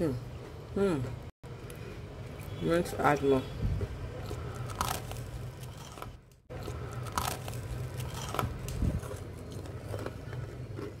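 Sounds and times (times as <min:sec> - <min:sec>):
low steady hum: 0:00.0 - 0:11.0
crunchy biting and chewing: 0:03.8 - 0:11.0.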